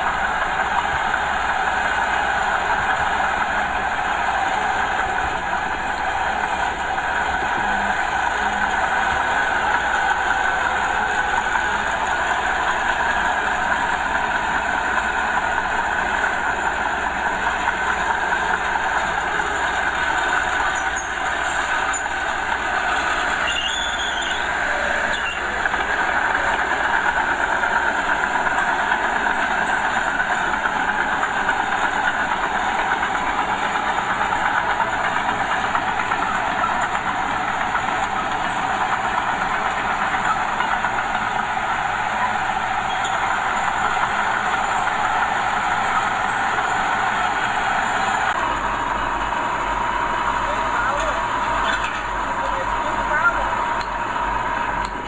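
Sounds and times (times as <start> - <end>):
bulldozer diesel engine clattering: 0.0 - 55.0.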